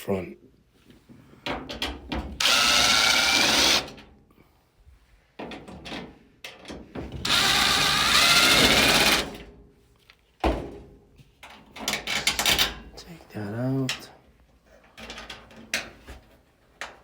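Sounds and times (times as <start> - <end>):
power drill driving screws: 2.4 - 4.0, 7.2 - 9.4.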